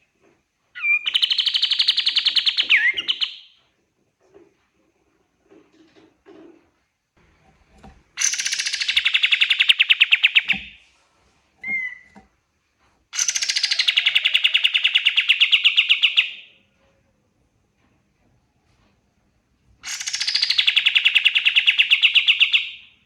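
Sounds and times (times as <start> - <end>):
bird singing rapid trills: 13.2 - 16.2.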